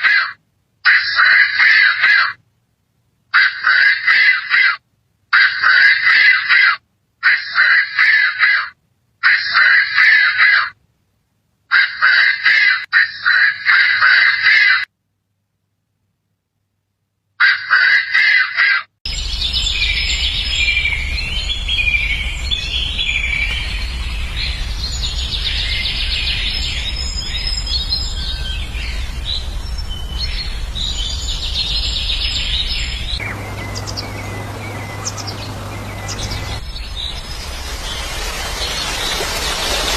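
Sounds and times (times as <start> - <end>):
birds chirping and twittering: 19.1 - 39.9
steady low rumble: 27.9 - 39.9
steady hiss: 33.2 - 39.9.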